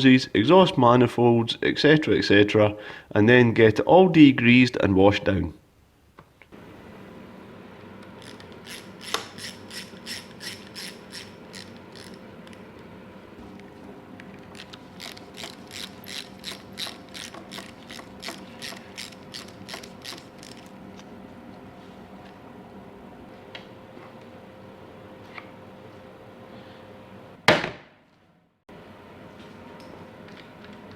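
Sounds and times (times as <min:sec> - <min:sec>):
socket ratchet wrench clicking: 0:08.2 - 0:12.6, 0:14.6 - 0:20.7.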